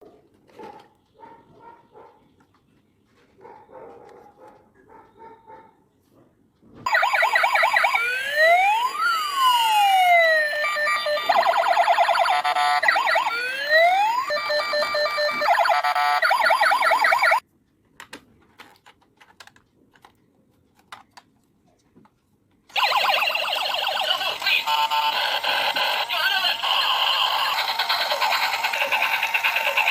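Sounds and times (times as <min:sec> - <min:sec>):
toy police car sirens: 0:06.9 - 0:17.4, 0:22.7 - 0:29.9.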